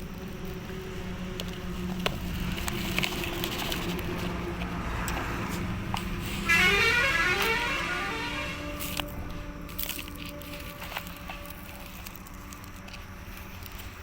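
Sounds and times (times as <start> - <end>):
toy electric motor humming: 6.4 - 9.2.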